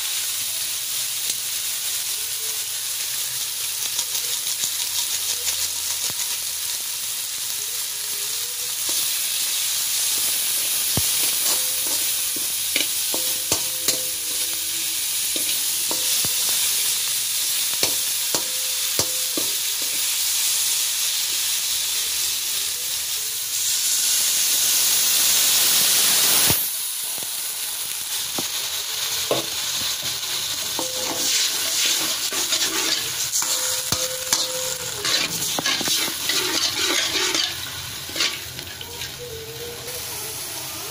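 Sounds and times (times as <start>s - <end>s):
sizzling in oil: 0.0s - 40.9s
spatula clicking and scraping pan: 10.2s - 20.1s, 30.7s - 39.2s.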